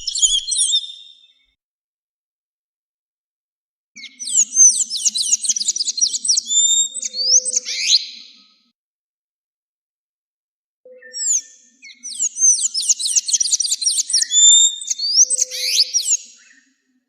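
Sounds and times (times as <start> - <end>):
bird singing high chirping notes: 0.0 - 1.3, 12.8 - 16.2.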